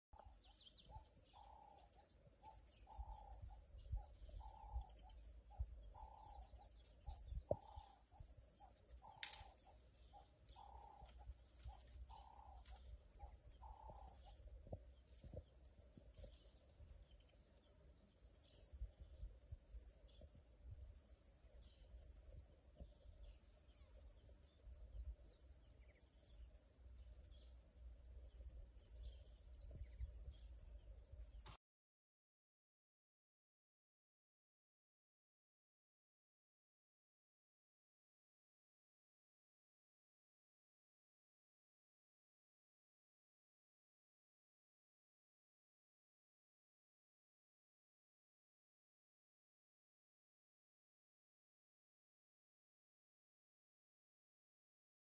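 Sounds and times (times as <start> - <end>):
faint bird calls: 0.2 - 24.6.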